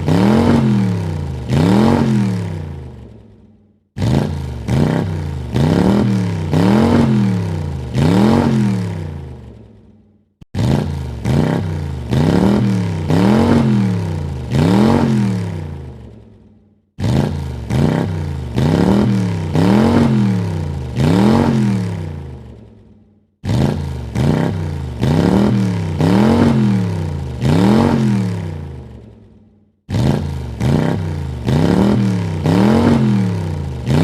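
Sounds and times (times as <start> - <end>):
car engine revving: 0.0 - 3.4, 4.0 - 9.7, 10.5 - 16.2, 17.0 - 22.6, 23.4 - 29.1, 29.9 - 34.0.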